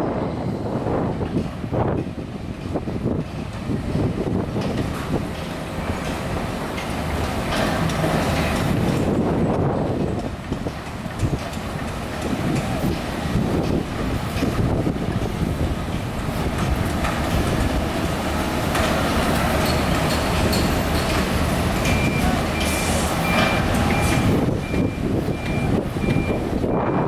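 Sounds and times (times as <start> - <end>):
heavy machinery rumbling: 0.0 - 27.0
reversing alarm beeping: 21.8 - 27.0.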